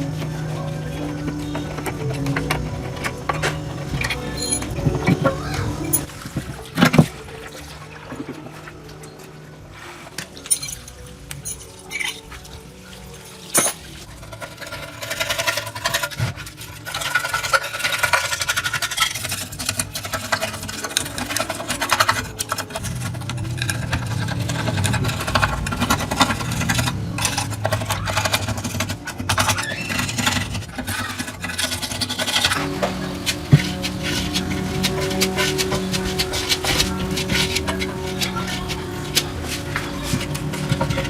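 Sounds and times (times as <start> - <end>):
hand tool scraping a surface: 14.1 - 41.0.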